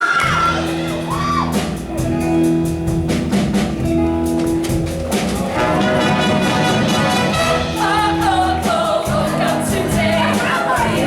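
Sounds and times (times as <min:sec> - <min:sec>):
band playing held chords: 0:00.2 - 0:11.0
drum and cymbal hits: 0:00.2 - 0:11.0
sliding notes: 0:00.5 - 0:11.0.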